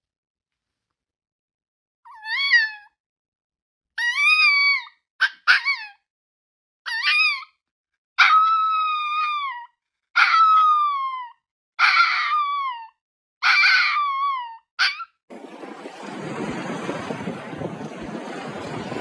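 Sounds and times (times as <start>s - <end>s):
steady rushing noise: 15.3s - 19.0s.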